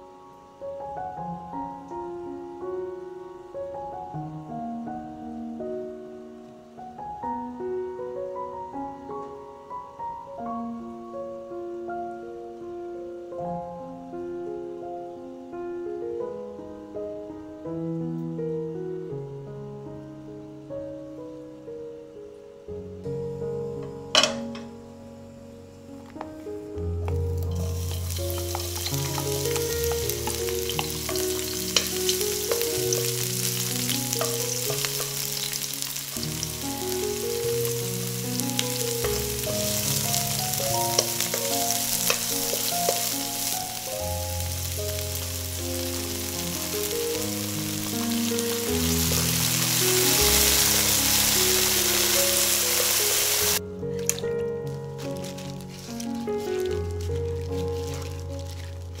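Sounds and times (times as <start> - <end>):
soft background music: 0.0 - 59.0
wooden spatula stirring: 27.3 - 44.0, 55.0 - 59.0
food sizzling in hot oil: 27.3 - 54.2.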